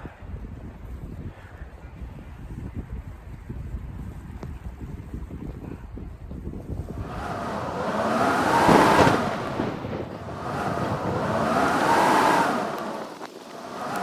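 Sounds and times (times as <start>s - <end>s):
howling blizzard wind: 6.8s - 14.0s.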